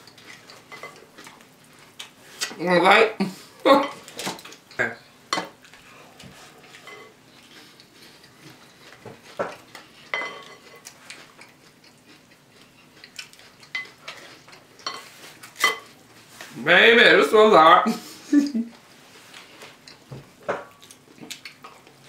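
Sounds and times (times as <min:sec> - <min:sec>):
spoons clinking against bowls: 0:10.1 - 0:10.8, 0:14.8 - 0:15.9.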